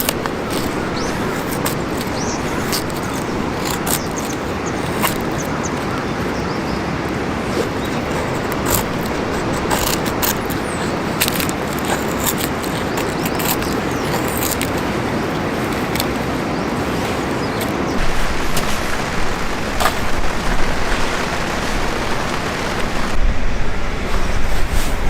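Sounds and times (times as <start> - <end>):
campfire rushing: 0.0 - 23.2
fire crackles and pops: 18.0 - 23.2.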